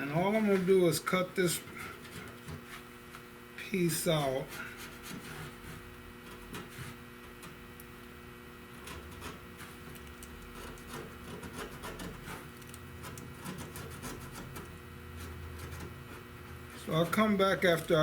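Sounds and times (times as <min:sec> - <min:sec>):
steady electrical hum: 0:00.0 - 0:18.0
faint scraping and rubbing: 0:04.4 - 0:07.0, 0:10.5 - 0:17.3.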